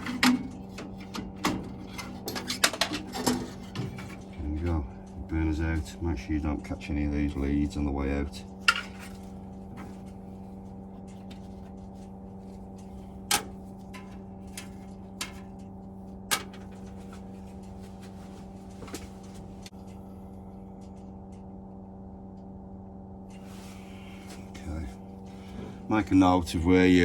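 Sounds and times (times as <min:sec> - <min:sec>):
clicks and knocks of boiler parts: 0:00.0 - 0:06.2, 0:08.4 - 0:19.7
steady low hum: 0:00.0 - 0:27.0.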